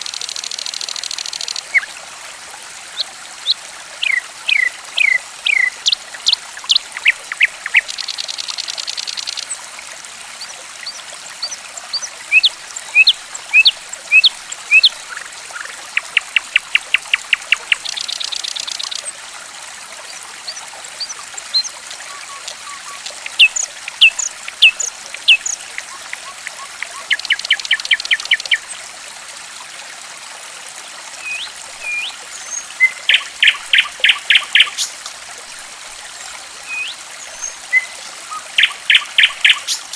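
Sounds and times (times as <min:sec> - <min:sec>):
trickle of running water: 0:00.0 - 0:39.9
songbird singing: 0:03.0 - 0:09.6, 0:10.8 - 0:19.1, 0:20.5 - 0:28.7, 0:31.2 - 0:35.0, 0:36.6 - 0:39.9.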